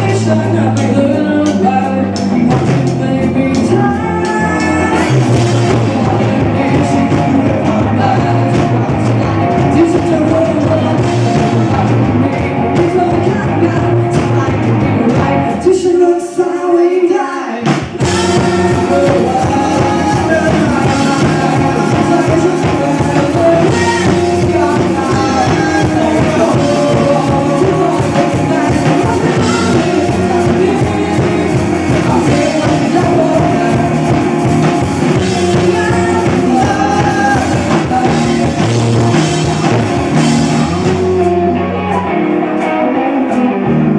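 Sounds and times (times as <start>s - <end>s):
person singing: 0.0s - 43.9s
rock band playing live: 0.0s - 43.9s.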